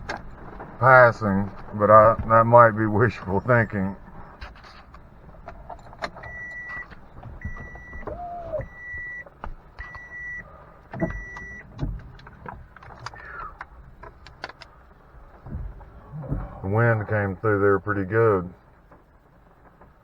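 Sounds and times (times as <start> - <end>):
knocks and clicks in cab: 0.0 - 16.7
truck warning chime beeps: 2.7 - 4.0, 6.1 - 11.8.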